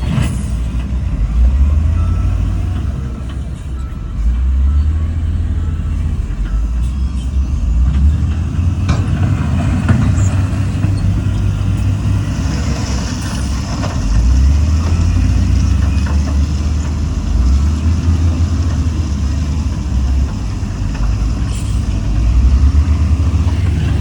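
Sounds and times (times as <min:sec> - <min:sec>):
heavy diesel machinery rumble: 0:00.0 - 0:24.0.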